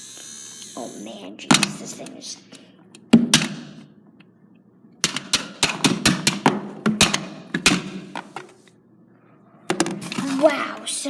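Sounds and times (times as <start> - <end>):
plastic toy being struck: 3.2 - 3.8, 5.0 - 8.1.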